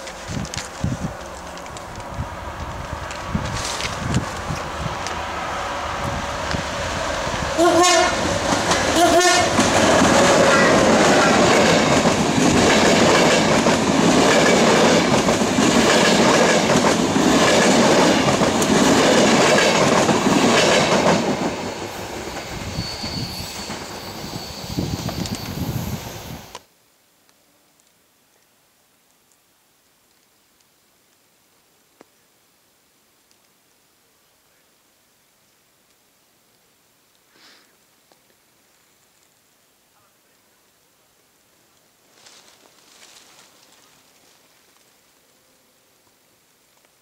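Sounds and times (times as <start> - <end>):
train horn blasts: 7.6 - 8.3, 8.9 - 9.6
train wheels clicking over rail joints: 8.2 - 21.7.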